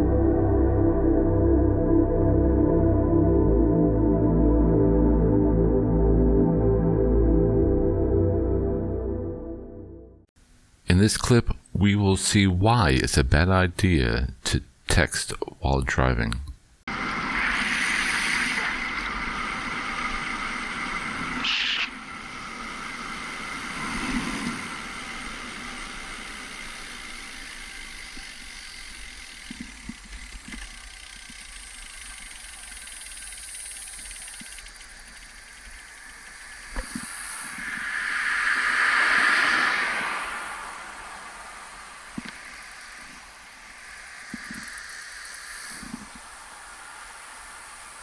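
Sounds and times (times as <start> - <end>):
hiss: 16.9 - 48.0
moving vehicle road and engine noise: 34.4 - 46.6.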